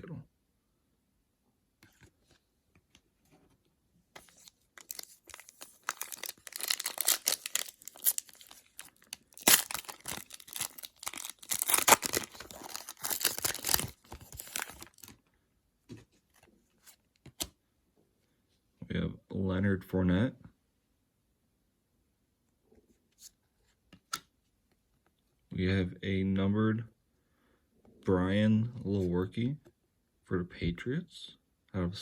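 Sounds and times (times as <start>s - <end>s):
wrapper tearing and crinkling: 4.2s - 15.1s.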